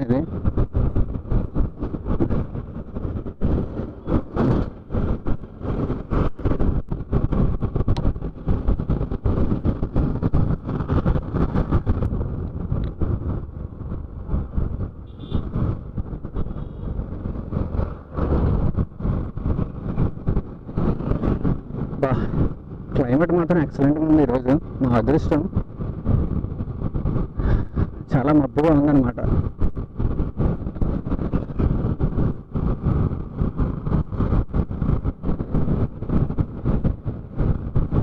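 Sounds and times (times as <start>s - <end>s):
motorcycle running: 0.0s - 38.0s
road noise: 0.0s - 38.0s
wind buffeting helmet microphone: 0.0s - 38.0s.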